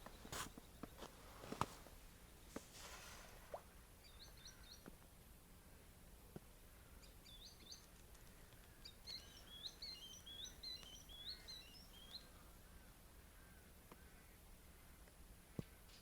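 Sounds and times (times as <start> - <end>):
small songbird singing: 4.0 - 4.9, 7.0 - 12.4.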